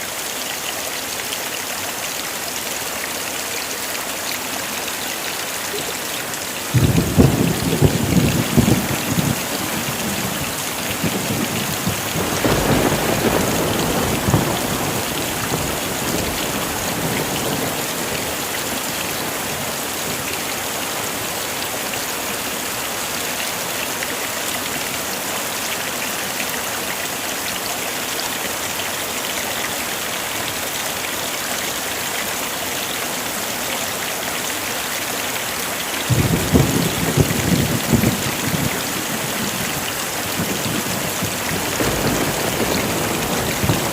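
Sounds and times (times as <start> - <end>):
heavy rain: 0.0 - 43.9
thunder rumble: 6.7 - 20.2, 36.1 - 43.9.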